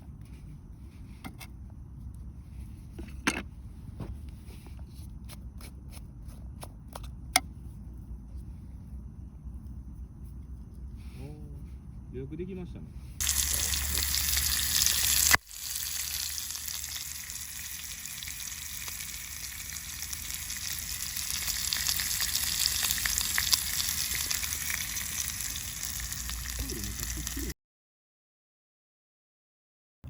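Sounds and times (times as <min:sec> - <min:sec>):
food sizzling with crackles: 0:13.2 - 0:27.6.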